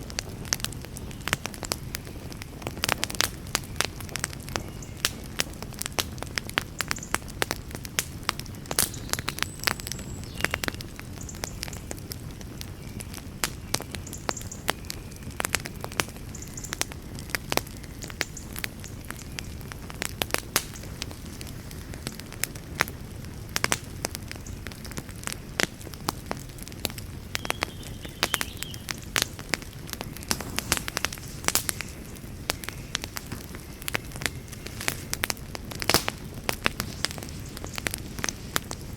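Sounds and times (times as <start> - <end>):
fire crackling and popping: 0.0 - 38.9
fire hissing: 0.0 - 38.9
low rumble of flames: 0.0 - 38.9.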